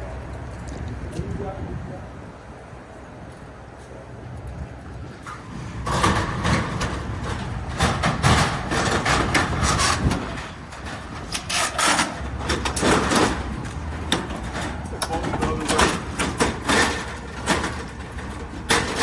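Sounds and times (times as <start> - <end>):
sharp knocks and clatter: 5.3 - 19.0.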